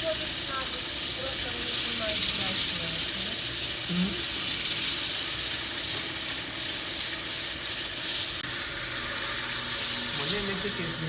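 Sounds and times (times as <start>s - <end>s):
water spraying on stone tiles: 0.0s - 11.0s.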